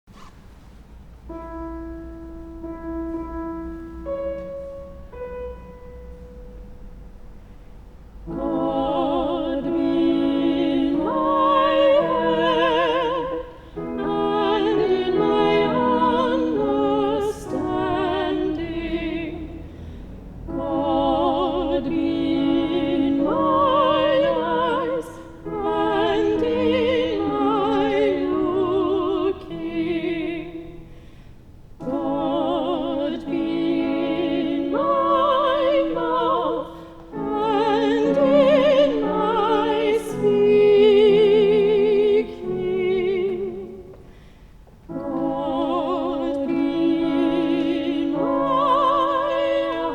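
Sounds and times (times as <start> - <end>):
voices singing in parts: 8.3 - 19.7, 20.5 - 30.8, 31.8 - 44.0, 44.9 - 49.9.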